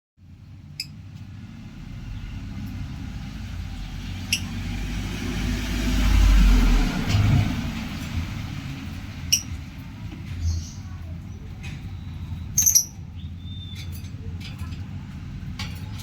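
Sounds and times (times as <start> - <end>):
bird chirping: 4.2 - 4.6, 9.2 - 9.6, 10.3 - 14.1.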